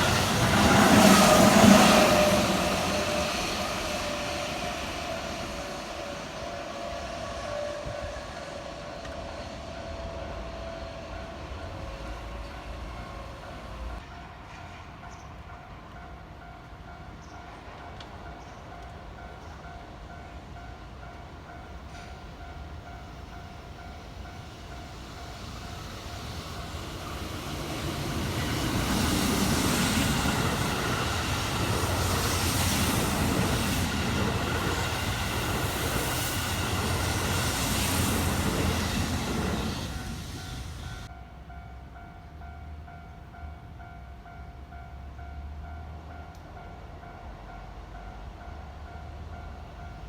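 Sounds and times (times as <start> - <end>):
electric train passing: 0.0 - 50.0.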